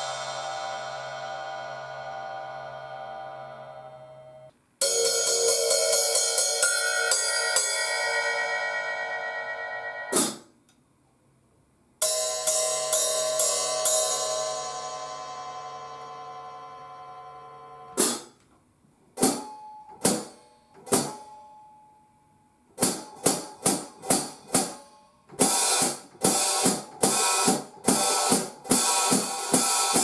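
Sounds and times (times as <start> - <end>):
hi-hat cymbals ringing: 0.0 - 3.8, 4.8 - 9.5, 22.8 - 30.0.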